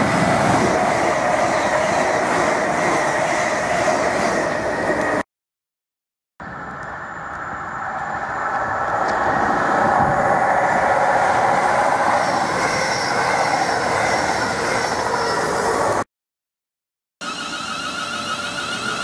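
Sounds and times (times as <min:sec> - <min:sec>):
train wheel and rail noise: 0:00.0 - 0:05.2, 0:06.4 - 0:16.0, 0:17.2 - 0:19.0.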